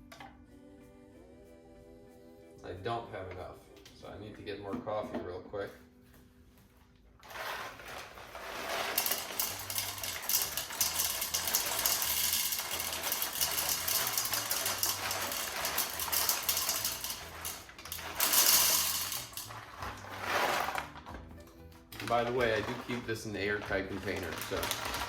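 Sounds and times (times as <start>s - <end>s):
coffee beans rattling into hopper: 7.2s - 21.2s, 21.9s - 25.0s.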